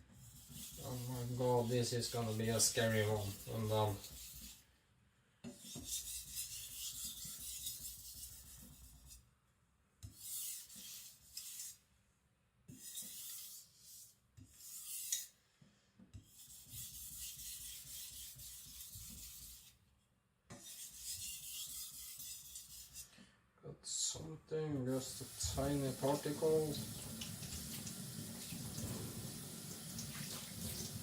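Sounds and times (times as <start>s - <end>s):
knife scraping on whetstone: 0.2s - 4.6s, 5.5s - 9.2s, 10.0s - 11.8s, 12.7s - 15.4s, 16.2s - 19.8s, 20.6s - 23.1s.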